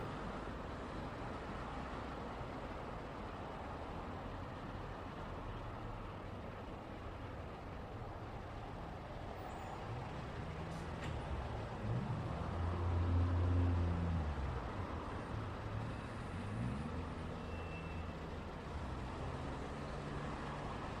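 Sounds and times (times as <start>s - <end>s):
hiss of passing vehicles: 8.8s - 21.0s
engines pulling away: 9.3s - 21.0s.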